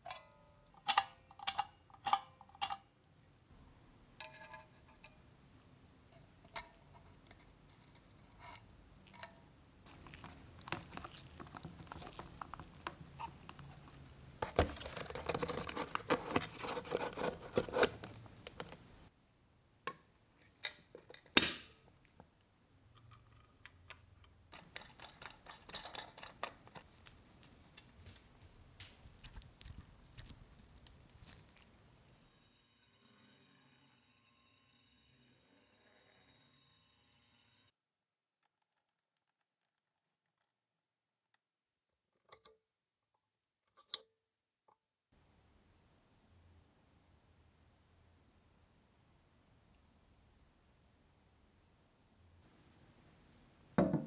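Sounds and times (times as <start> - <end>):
rustling and scraping: 6.9 - 19.1.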